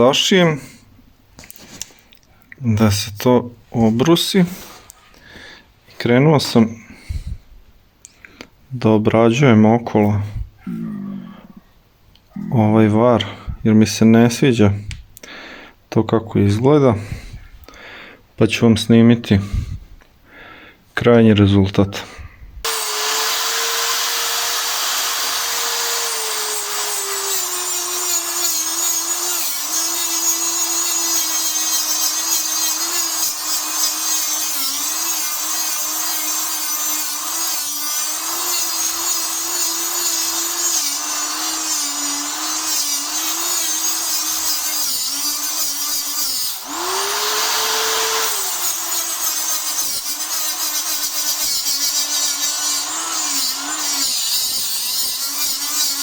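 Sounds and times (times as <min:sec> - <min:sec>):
angle grinder grinding metal: 0:22.6 - 0:56.0.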